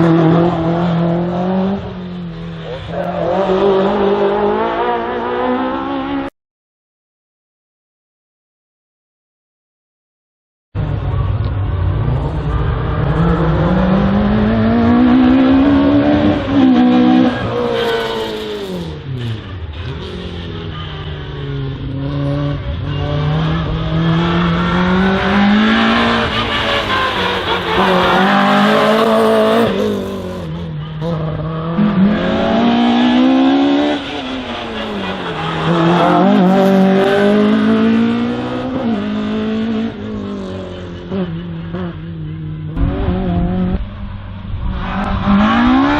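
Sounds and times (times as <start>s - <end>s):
race car engine revving: 10.8s - 45.9s.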